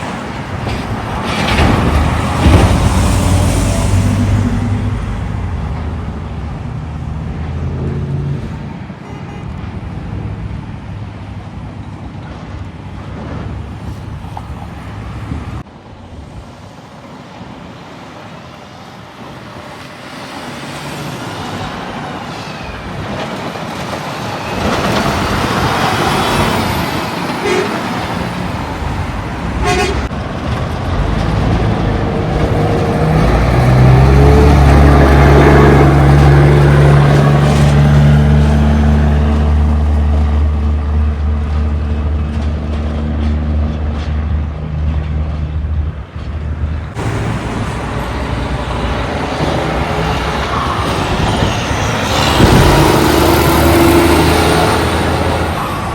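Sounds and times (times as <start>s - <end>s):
loud low truck engine: 0.0s - 15.7s, 18.7s - 55.9s
heavy trucks passing: 0.0s - 55.9s
short horn toot: 27.4s - 27.8s, 29.6s - 30.1s.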